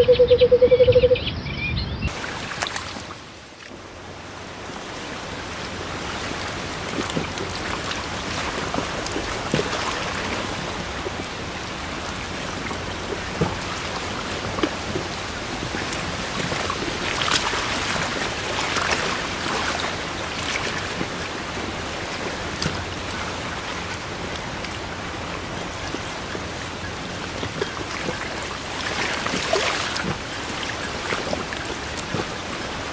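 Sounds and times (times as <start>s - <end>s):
steady water noise: 2.0s - 32.9s.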